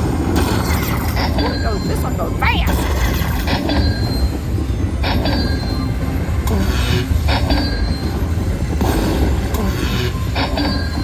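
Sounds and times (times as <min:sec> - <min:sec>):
loud casino din: 0:00.1 - 0:04.3
slot machine electronic chimes: 0:01.2 - 0:03.0.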